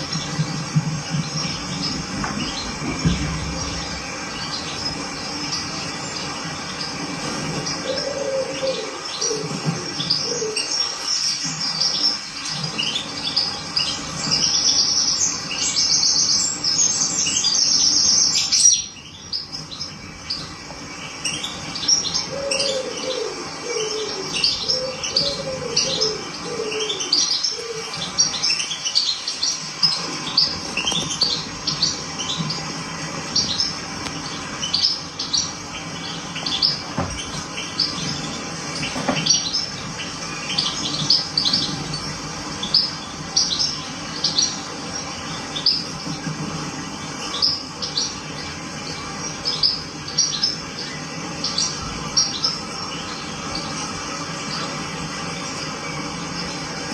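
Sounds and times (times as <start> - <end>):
small birds chirping: 0.0 - 56.9
downward-sliding bird calls: 1.4 - 14.9, 21.1 - 44.8.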